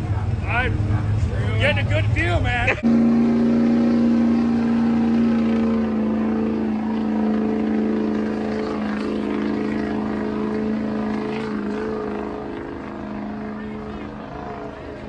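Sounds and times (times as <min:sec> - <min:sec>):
truck engine revving high: 0:00.0 - 0:15.0.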